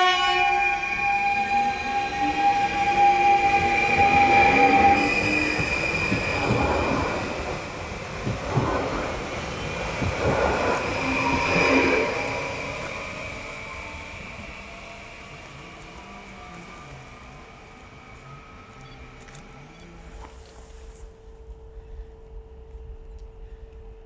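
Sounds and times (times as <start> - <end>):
train horn: 0.0 - 7.5.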